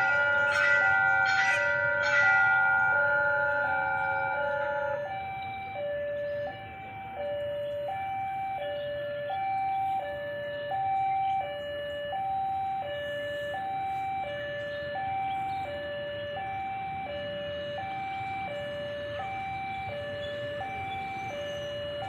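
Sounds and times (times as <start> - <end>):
ringing chime: 0.0 - 9.9
level crossing two-tone alarm: 0.0 - 22.0.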